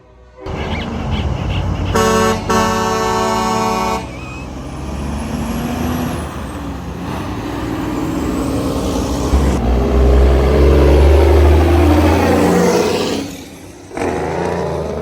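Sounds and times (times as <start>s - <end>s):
truck air horn blasts: 0.0s - 4.5s
truck engines running: 0.0s - 15.0s.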